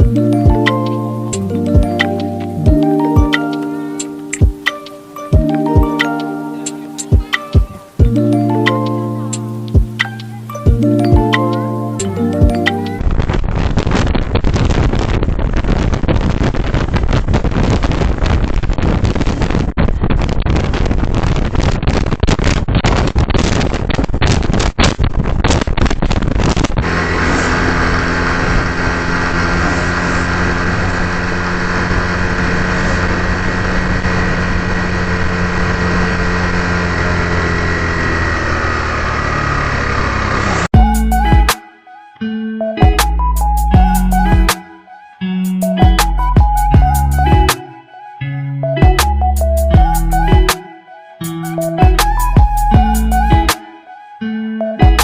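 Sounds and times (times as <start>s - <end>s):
motorbike engine running: 26.8s - 40.8s.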